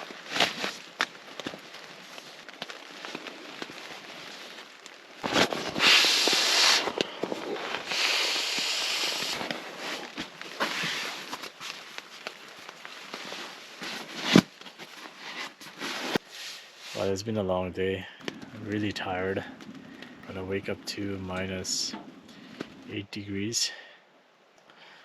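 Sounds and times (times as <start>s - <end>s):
wood fire crackling and popping: 0.0s - 16.2s, 18.0s - 23.0s
loud hissing: 5.7s - 9.5s.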